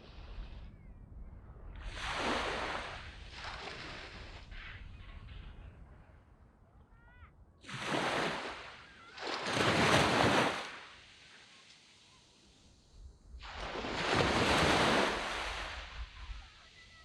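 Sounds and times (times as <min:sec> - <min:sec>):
low rumble of sea: 0:00.0 - 0:10.9
waves breaking on sand: 0:01.8 - 0:05.6, 0:07.6 - 0:17.0.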